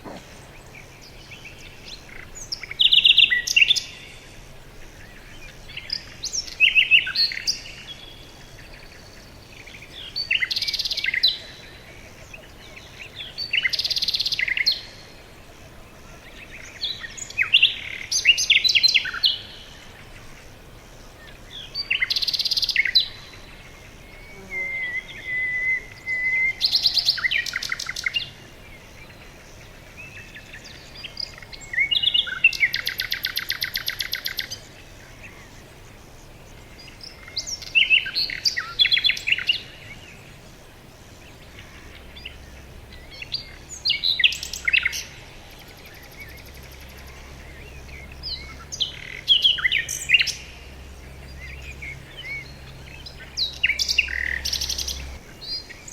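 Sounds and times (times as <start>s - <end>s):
faint steady background hiss: 0.0s - 55.9s
songbirds singing with trills: 0.0s - 55.9s.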